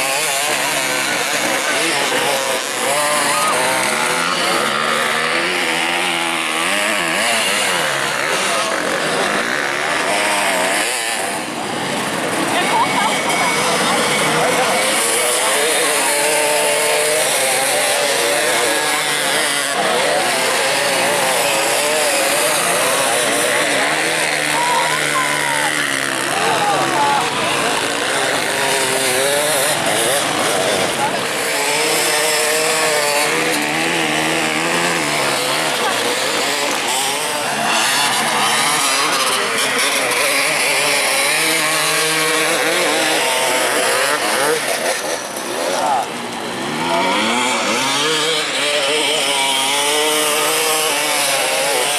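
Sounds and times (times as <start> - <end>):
dirt bike engines revving: 0.0 - 51.9.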